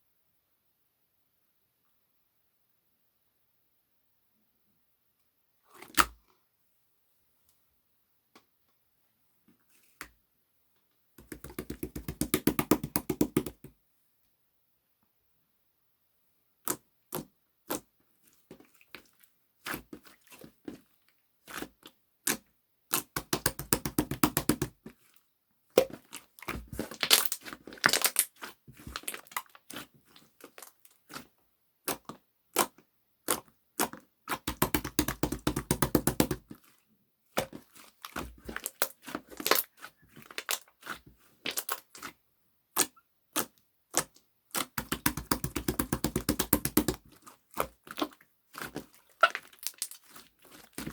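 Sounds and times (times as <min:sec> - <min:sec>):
sharp taps and clicks: 0:11.2 - 0:13.7, 0:23.2 - 0:24.7, 0:34.4 - 0:36.4, 0:44.8 - 0:47.0.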